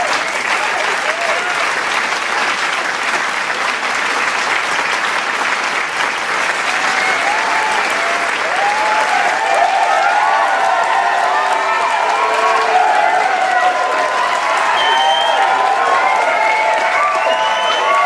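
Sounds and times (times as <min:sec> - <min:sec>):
crowd cheering and whooping: 0:00.0 - 0:01.9, 0:06.4 - 0:18.0
crowd clapping: 0:00.0 - 0:18.0.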